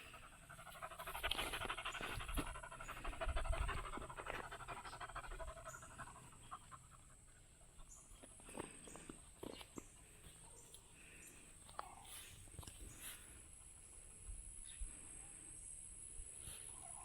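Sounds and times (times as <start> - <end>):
dog panting: 0.0 - 8.6.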